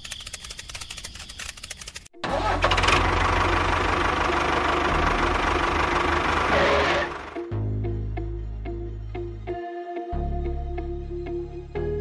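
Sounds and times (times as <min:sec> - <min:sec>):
engine cranking clicks: 0:00.0 - 0:07.2
engine running with deep hum: 0:02.2 - 0:08.1.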